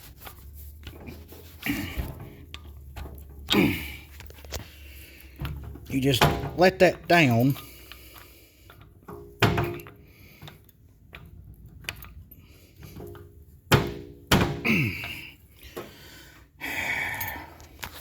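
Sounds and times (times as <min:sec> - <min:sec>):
metal clunks of floor jack: 0:09.1 - 0:10.0, 0:12.9 - 0:15.1.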